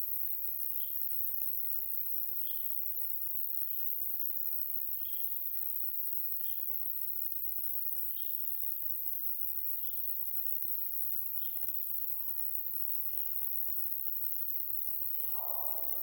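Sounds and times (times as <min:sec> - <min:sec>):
insects chirring: 0:09.4 - 0:16.0
bird calling: 0:15.2 - 0:16.0.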